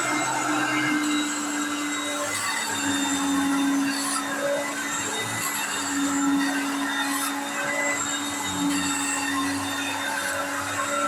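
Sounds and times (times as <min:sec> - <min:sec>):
upright vacuum cleaner running: 0:00.0 - 0:11.0.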